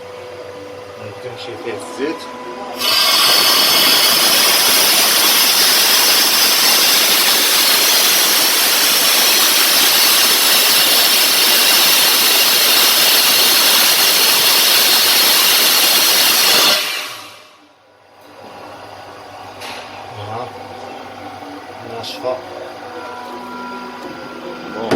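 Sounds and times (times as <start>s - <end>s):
turbocharger hissing with high whine: 2.8s - 17.7s.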